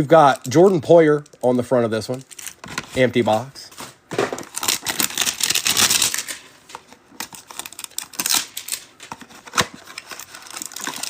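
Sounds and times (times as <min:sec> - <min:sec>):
packaging tearing: 0:02.1 - 0:03.0, 0:04.3 - 0:06.5, 0:07.2 - 0:11.0.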